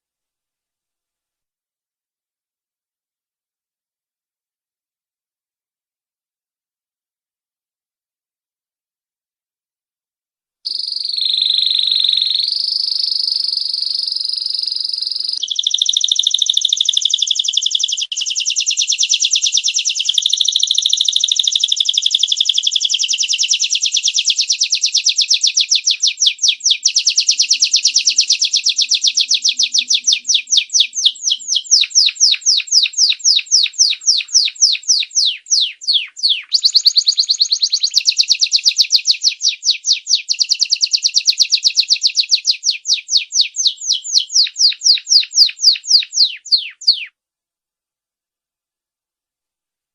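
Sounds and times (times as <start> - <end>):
canary singing trills: 10.7 - 47.1.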